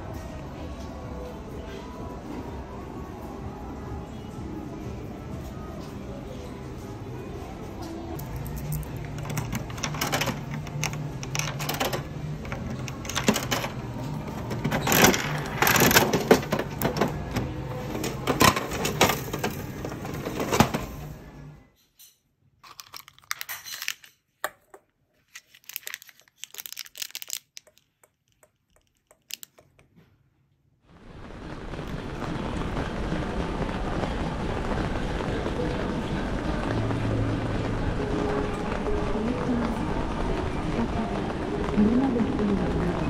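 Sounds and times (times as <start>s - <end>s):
small hard objects clicking: 22.6s - 29.9s.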